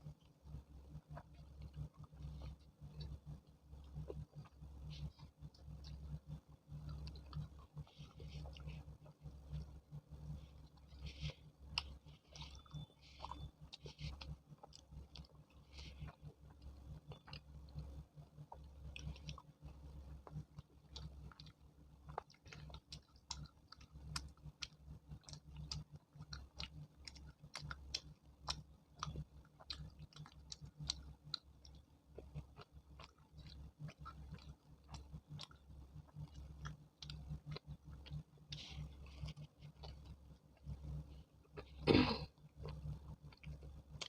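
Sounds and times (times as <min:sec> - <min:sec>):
person chewing with mouth smacks: 0:00.0 - 0:44.0.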